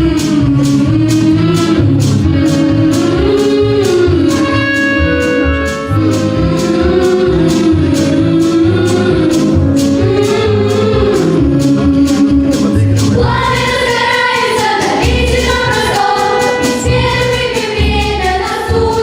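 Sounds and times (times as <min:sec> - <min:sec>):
bass and guitar accompaniment: 0:00.0 - 0:19.0
person singing: 0:00.0 - 0:19.0.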